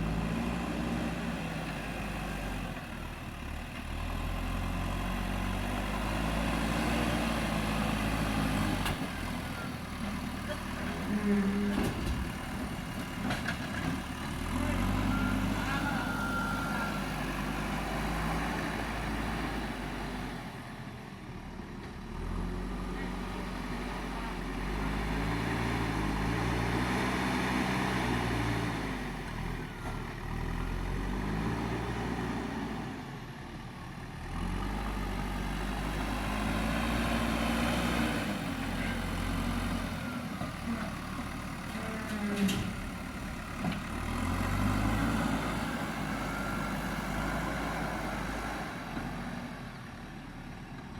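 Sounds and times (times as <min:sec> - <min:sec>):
diesel engine under load: 0:00.0 - 0:50.9.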